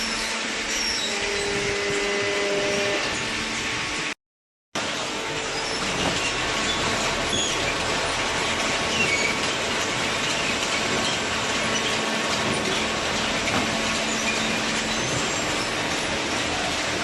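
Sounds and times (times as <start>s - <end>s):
baler machinery running: 4.8s - 17.0s
short high squeaks: 5.3s - 7.8s.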